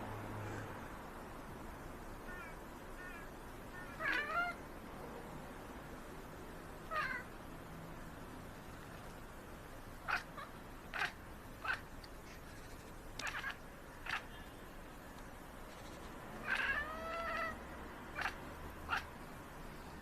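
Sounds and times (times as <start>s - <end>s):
cats meowing: 2.3s - 4.6s, 6.9s - 7.3s, 10.1s - 11.8s, 13.2s - 14.3s, 15.7s - 19.1s.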